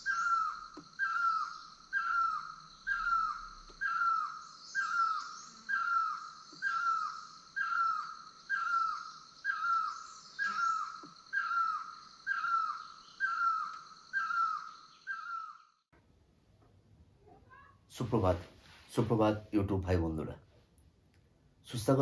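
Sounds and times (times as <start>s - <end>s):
insects droning: 0.0s - 15.9s.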